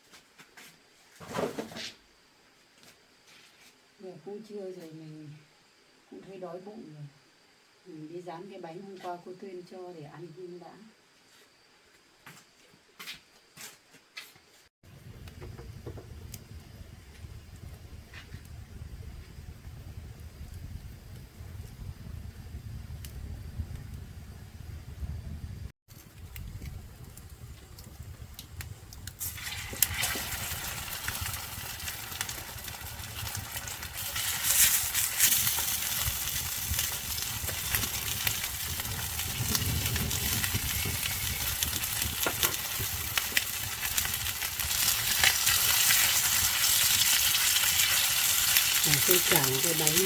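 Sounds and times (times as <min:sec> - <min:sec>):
cakes sizzling in oil: 0:14.9 - 0:25.0, 0:25.9 - 0:50.0
oil crackles and pops: 0:14.9 - 0:50.0.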